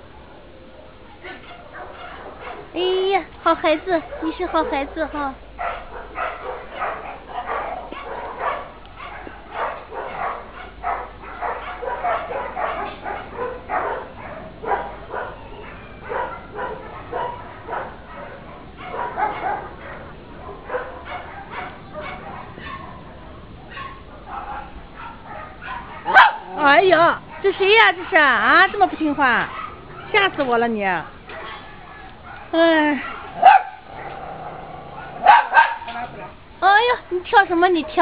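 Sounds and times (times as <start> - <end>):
many dogs barking: 0.2 - 38.0.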